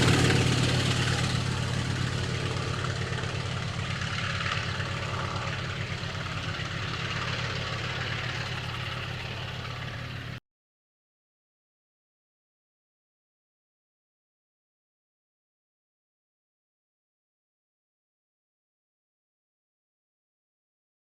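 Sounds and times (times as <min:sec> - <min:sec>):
aircraft radial engine idling: 0:00.0 - 0:10.4.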